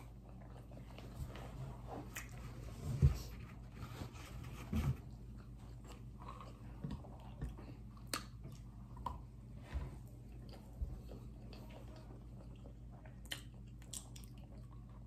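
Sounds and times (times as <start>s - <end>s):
person chewing rice: 0.0s - 1.5s, 5.1s - 15.0s.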